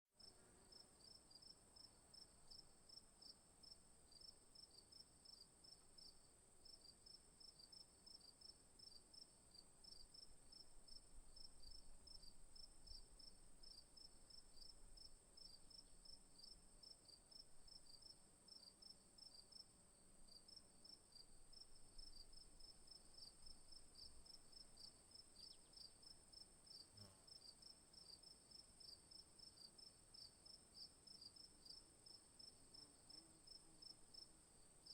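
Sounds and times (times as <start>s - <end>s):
rapid insect chirps: 20.3s - 34.9s.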